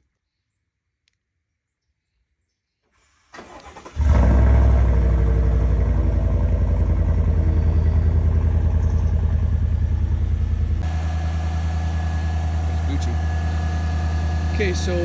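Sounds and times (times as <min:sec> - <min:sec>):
starter motor cranking: 0:03.3 - 0:04.3, 0:10.3 - 0:15.0
truck engine idling: 0:03.4 - 0:15.0.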